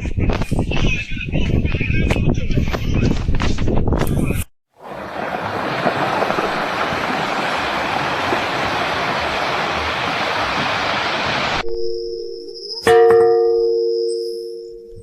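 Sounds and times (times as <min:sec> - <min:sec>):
steady rushing noise: 0:04.8 - 0:11.6.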